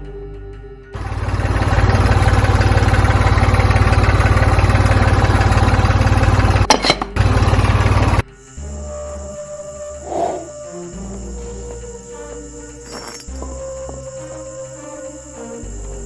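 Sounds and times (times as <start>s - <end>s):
tractor engine running: 1.0s - 8.3s.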